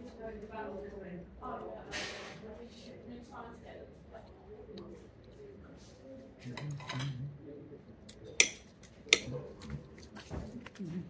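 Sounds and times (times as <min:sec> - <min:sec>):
cutlery clicking against plate: 0:08.4 - 0:09.3.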